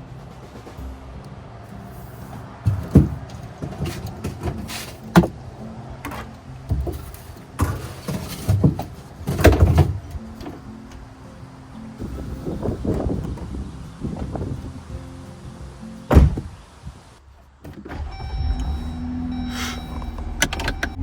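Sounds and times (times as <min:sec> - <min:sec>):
quiet background music: 0:00.0 - 0:21.0
objects knocking and clunking: 0:02.3 - 0:11.1.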